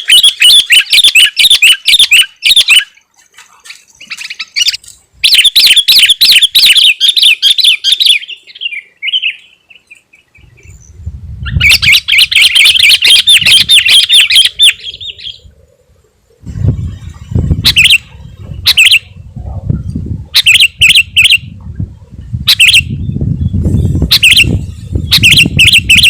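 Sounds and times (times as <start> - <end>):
bulbul chattering song: 0.0 - 3.0, 11.5 - 15.5, 17.2 - 19.2, 19.8 - 21.5, 22.4 - 26.0.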